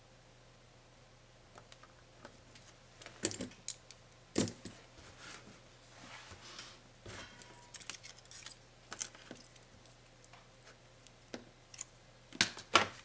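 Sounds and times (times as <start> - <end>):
soft rustles: 4.8 - 10.0.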